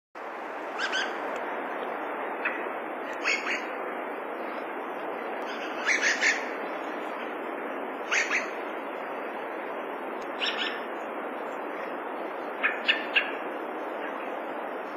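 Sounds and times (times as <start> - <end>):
steady background hiss: 0.2 - 14.9
thrush calls: 0.7 - 1.3, 2.4 - 3.8, 5.4 - 7.3, 8.0 - 8.6, 10.4 - 10.9, 12.6 - 13.4.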